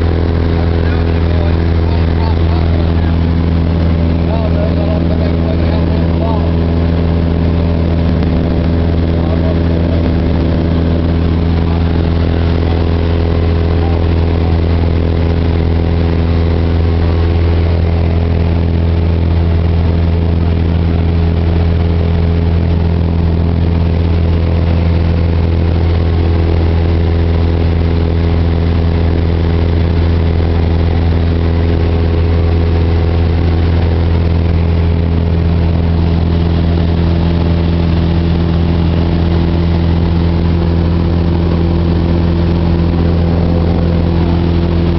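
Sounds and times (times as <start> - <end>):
propeller plane engine droning: 0.0 - 44.9.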